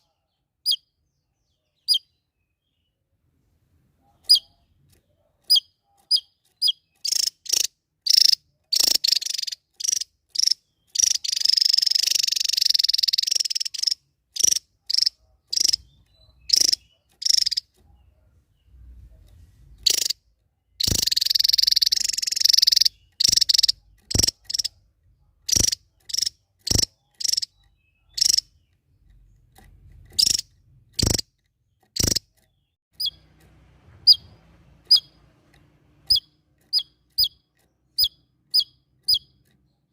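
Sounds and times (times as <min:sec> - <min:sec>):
songbird singing sharp notes: 0:05.4 - 0:18.9, 0:19.8 - 0:20.2, 0:20.8 - 0:24.8, 0:25.4 - 0:29.5, 0:30.2 - 0:33.3, 0:36.0 - 0:39.9
buzzy rattling trill: 0:20.8 - 0:24.7.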